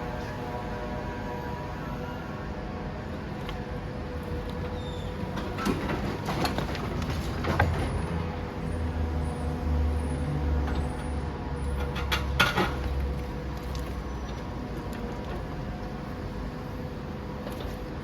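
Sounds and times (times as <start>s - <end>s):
demolition machine engine rumbling: 0.0s - 18.0s.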